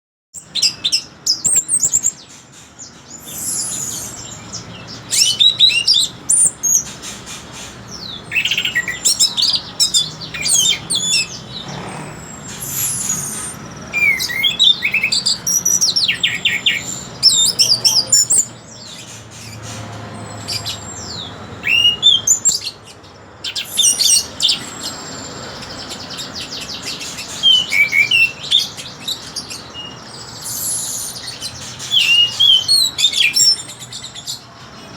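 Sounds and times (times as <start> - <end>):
thrush singing: 7.7 - 18.6.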